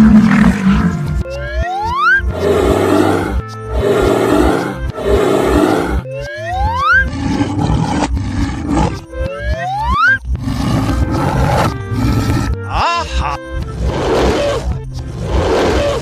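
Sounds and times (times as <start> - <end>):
animal roar sound effects: 0.0 - 1.2, 2.3 - 9.6, 10.3 - 12.6, 13.7 - 16.0
cartoon background music: 0.0 - 16.0.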